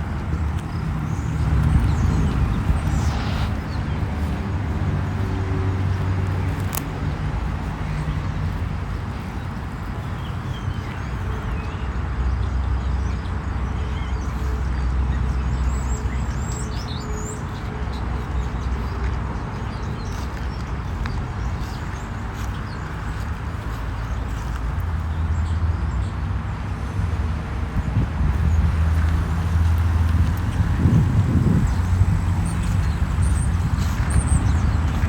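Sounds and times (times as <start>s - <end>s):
steady low rumble: 0.0s - 9.0s, 22.0s - 35.0s.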